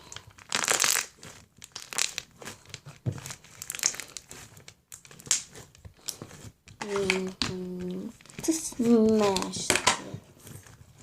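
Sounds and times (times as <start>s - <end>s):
slime crackling when squeezed: 0.0s - 5.6s.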